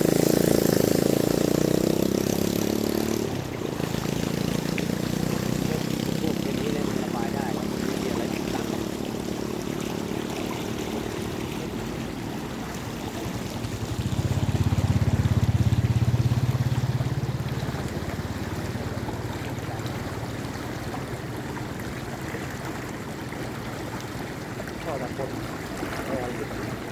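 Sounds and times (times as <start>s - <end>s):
small engine humming: 0.0s - 24.3s
floodwater flowing: 0.0s - 26.9s.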